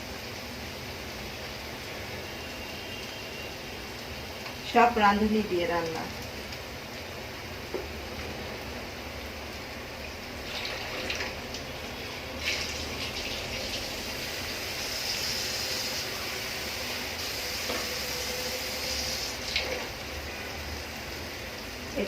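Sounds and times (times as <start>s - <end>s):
water pouring into pot: 9.6s - 22.0s.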